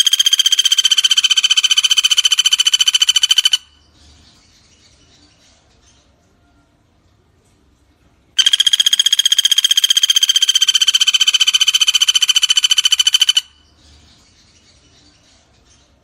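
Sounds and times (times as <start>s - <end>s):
woodpecker rattling trill: 0.0s - 3.8s, 8.4s - 13.7s.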